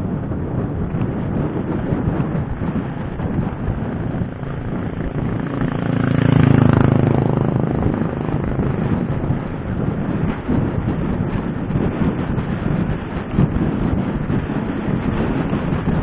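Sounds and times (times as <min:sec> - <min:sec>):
wind buffeting microphone: 0:00.0 - 0:16.0
passing vehicle engine: 0:01.8 - 0:11.7.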